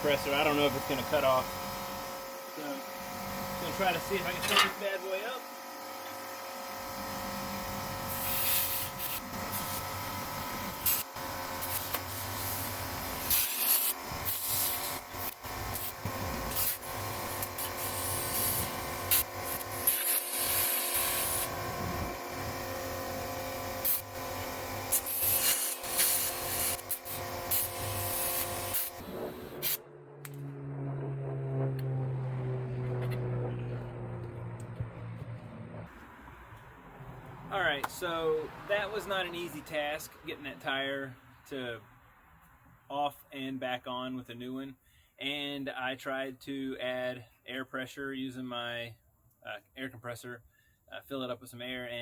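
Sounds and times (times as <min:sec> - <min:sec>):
air compressor running: 0:00.0 - 0:29.8
air hissing in bursts: 0:07.5 - 0:22.8, 0:23.7 - 0:29.8.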